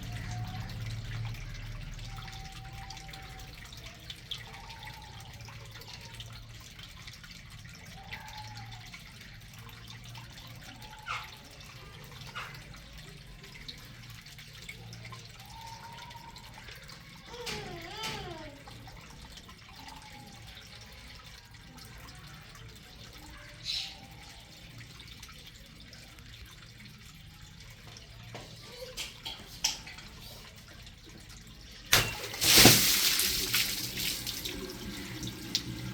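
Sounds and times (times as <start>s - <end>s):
faint clicks and drips: 0.0s - 32.5s, 33.4s - 35.9s
water balloon bursting: 31.9s - 34.4s
water gushing and splashing: 31.9s - 35.9s.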